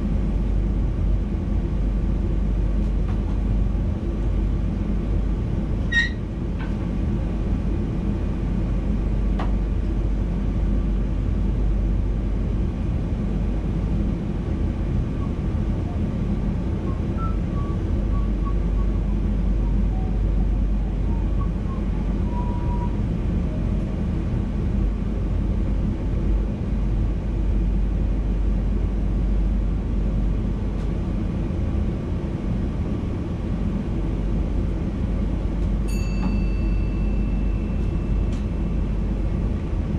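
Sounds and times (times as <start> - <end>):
short high squeak: 5.9 - 6.2.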